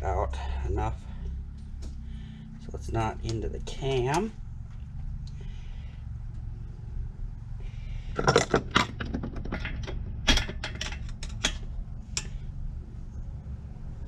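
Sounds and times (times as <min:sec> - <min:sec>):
steady low hum: 0:00.0 - 0:14.0
engine parts clinking: 0:07.8 - 0:12.5.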